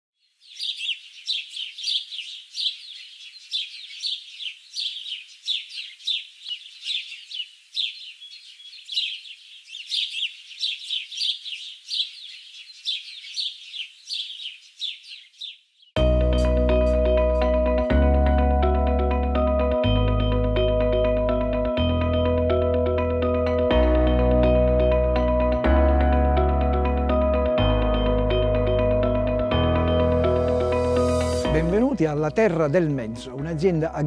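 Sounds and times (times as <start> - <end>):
birds chirping: 0.2 - 19.6
loud music: 16.0 - 33.8.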